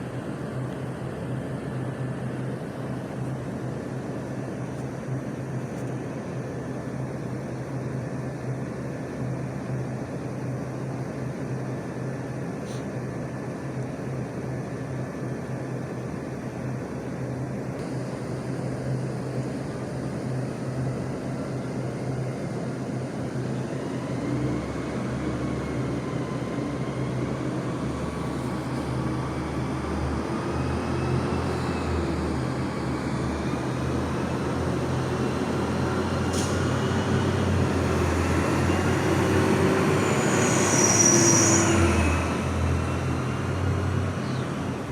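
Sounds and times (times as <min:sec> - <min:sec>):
high squeal: 0:38.6 - 0:43.3.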